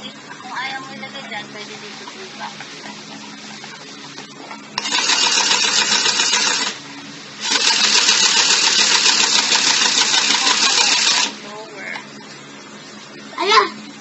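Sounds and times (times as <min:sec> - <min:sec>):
toy sewing machine rattling: 0:04.8 - 0:06.8, 0:07.4 - 0:11.4.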